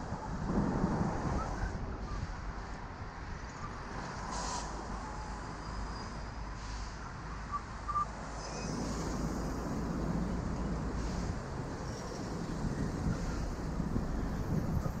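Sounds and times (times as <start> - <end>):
wind on microphone: 0.0 - 4.1, 8.7 - 15.0
street traffic: 0.0 - 15.0.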